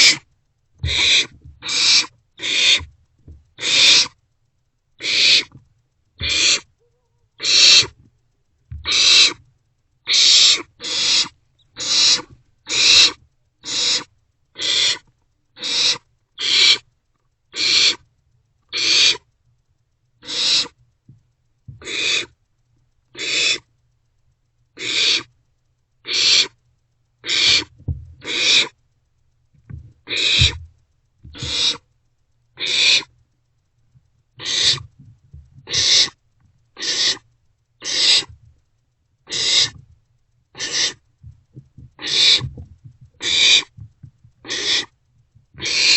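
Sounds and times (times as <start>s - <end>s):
owlets hissing screeches: 0.0s - 2.9s, 3.6s - 4.2s, 5.0s - 5.6s, 6.2s - 6.7s, 7.4s - 8.0s, 8.9s - 9.4s, 10.1s - 15.0s, 15.6s - 16.8s, 20.2s - 20.8s, 23.2s - 23.7s, 24.8s - 25.3s, 30.1s - 30.6s, 31.4s - 31.8s, 32.6s - 33.1s, 34.4s - 34.9s, 35.7s - 36.2s, 36.8s - 37.2s, 37.8s - 38.3s, 39.3s - 39.8s, 40.6s - 41.0s, 42.0s - 42.5s, 43.2s - 43.8s, 44.4s - 44.9s, 45.6s - 45.9s.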